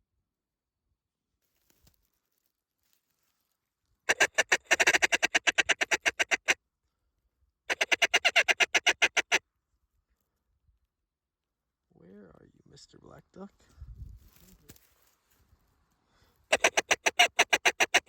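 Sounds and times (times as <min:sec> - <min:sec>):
duck call quacking: 0:04.1 - 0:06.6, 0:07.7 - 0:09.4, 0:16.5 - 0:18.0.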